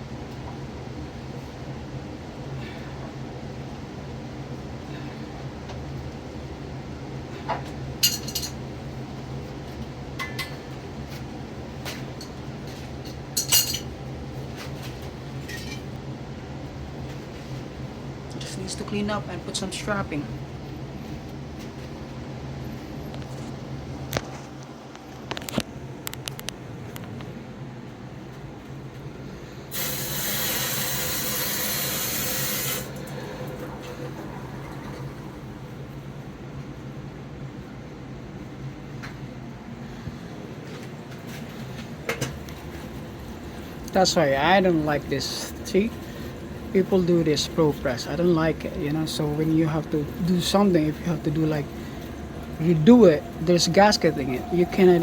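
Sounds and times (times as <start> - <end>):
steady low hum: 0.0 - 55.0
rushing hiss of flowing water: 29.7 - 34.2.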